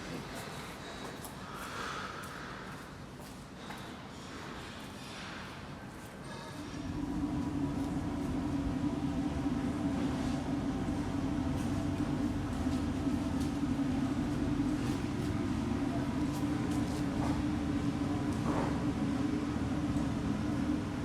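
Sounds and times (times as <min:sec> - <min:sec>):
engine droning: 0:06.7 - 0:21.0.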